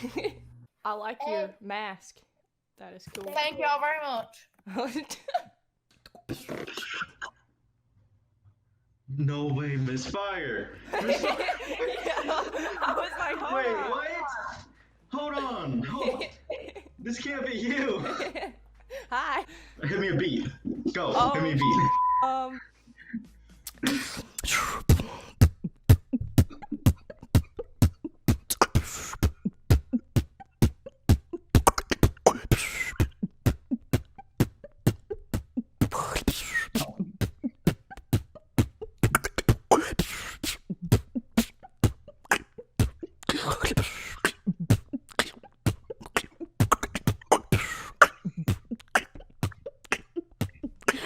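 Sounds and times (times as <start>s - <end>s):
person beatboxing: 23.0s - 51.0s.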